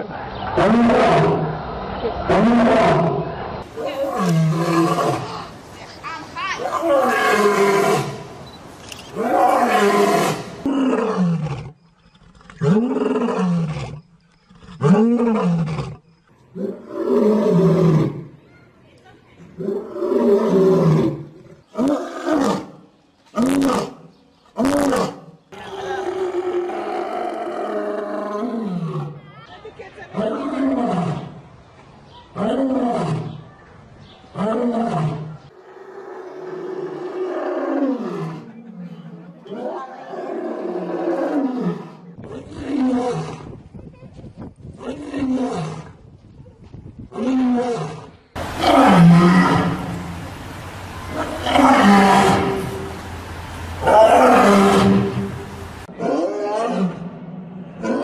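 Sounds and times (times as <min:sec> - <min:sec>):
animal drawn-out calls: 0:48.4 - 0:55.9.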